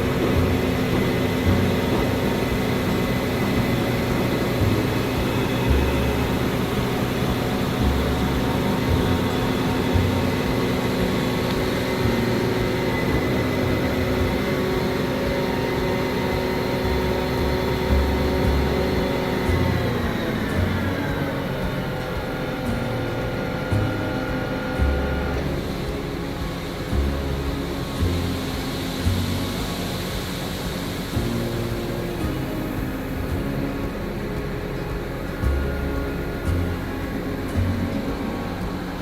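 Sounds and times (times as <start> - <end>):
diesel machinery engine drone: 0.0 - 39.0
machinery whining: 0.0 - 39.0.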